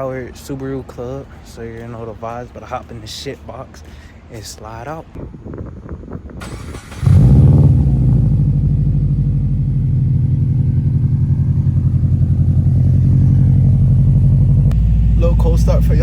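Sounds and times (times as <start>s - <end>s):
starter motor cranking: 6.4s - 8.1s
car engine idling: 6.4s - 16.0s.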